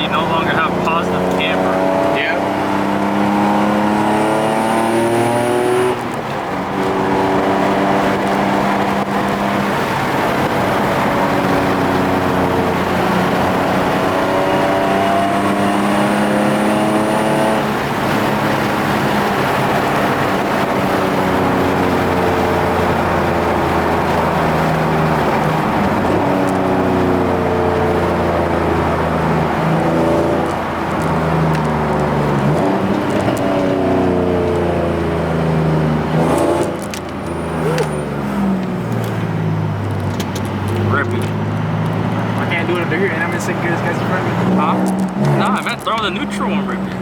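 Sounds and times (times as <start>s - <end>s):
car engine accelerating: 0.0s - 47.0s.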